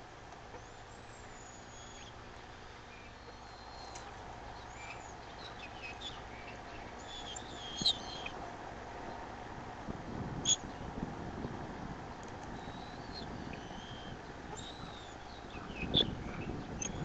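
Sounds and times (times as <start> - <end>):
birds chirping and whistling: 0.6 - 8.4, 12.6 - 17.0.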